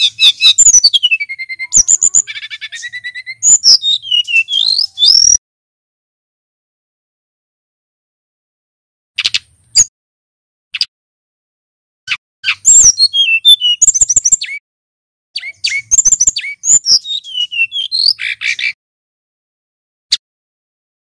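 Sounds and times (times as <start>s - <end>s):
bird singing high whistled notes: 0.0s - 5.4s, 12.1s - 14.6s, 15.4s - 18.8s
short bird calls: 15.4s - 18.8s.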